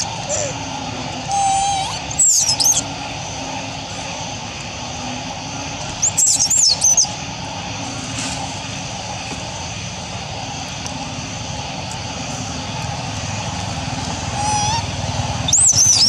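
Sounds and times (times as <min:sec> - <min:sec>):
outdoor background hum: 0:00.0 - 0:16.0
high swooping bird chirps: 0:01.3 - 0:02.9, 0:06.0 - 0:07.2, 0:14.3 - 0:16.0.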